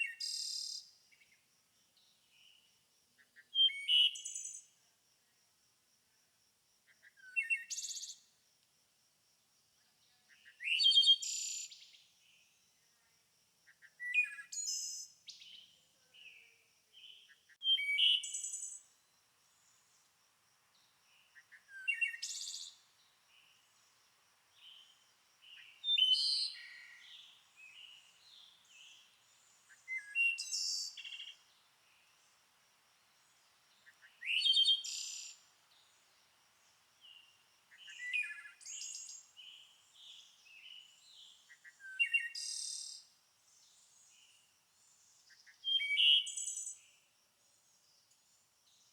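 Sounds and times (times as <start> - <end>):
songbird singing: 0.0 - 4.8, 6.8 - 8.4, 9.8 - 48.9
bird chirps: 13.8 - 19.0, 20.8 - 23.7, 24.5 - 32.1, 33.8 - 35.9, 37.0 - 42.8.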